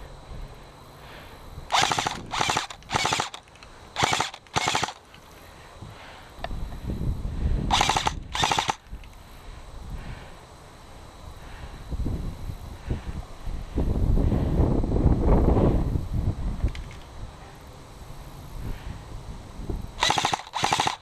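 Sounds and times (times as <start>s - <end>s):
airsoft gun firing bursts: 1.7s - 5.0s, 7.7s - 8.8s, 20.0s - 21.0s.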